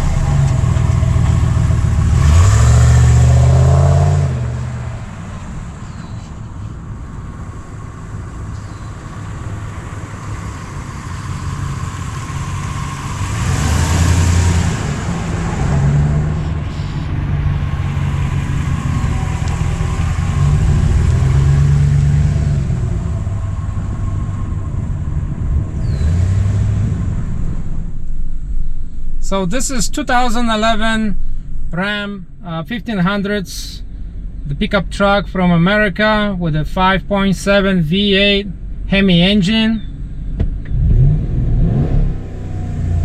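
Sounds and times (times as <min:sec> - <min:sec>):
pickup engine revving: 0:00.0 - 0:28.1, 0:40.2 - 0:43.0.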